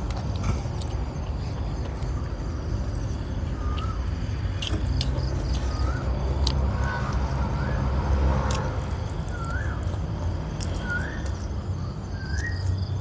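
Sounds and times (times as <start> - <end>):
crickets chirping: 0.0 - 13.0
crunchy chewing: 0.0 - 13.0
bird whistled calls: 3.5 - 4.2, 5.5 - 8.0, 9.2 - 10.0, 10.6 - 12.8.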